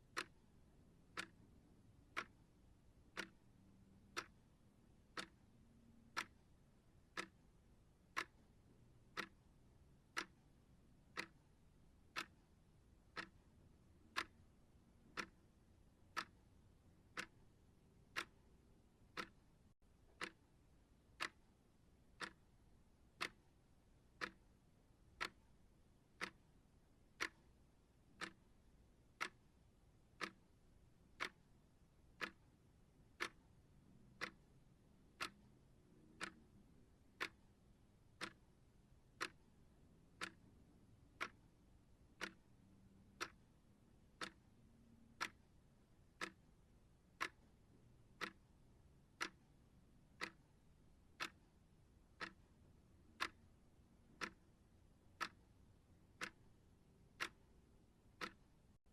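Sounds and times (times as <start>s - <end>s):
clock ticking: 0.0s - 58.9s
faint background hiss: 0.0s - 58.9s.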